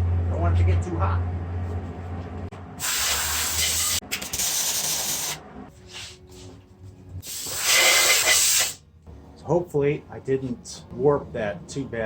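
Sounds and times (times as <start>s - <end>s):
welding hiss: 2.8s - 5.4s, 7.2s - 8.8s.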